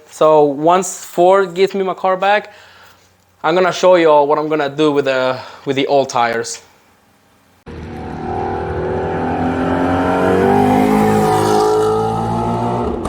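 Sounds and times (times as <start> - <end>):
car engine accelerating hard: 7.7 - 13.0.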